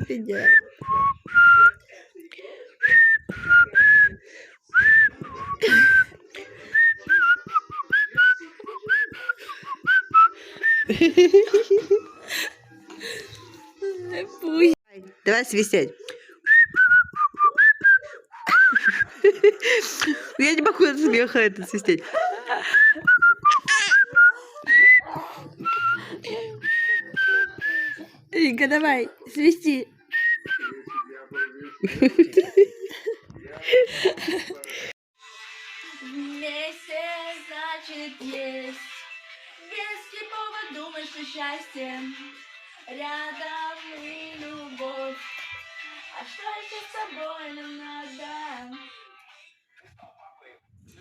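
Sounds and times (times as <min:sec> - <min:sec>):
person whistling: 0:00.4 - 0:01.8, 0:02.8 - 0:04.2, 0:04.8 - 0:11.1, 0:16.5 - 0:19.3, 0:22.6 - 0:28.1, 0:30.1 - 0:32.1.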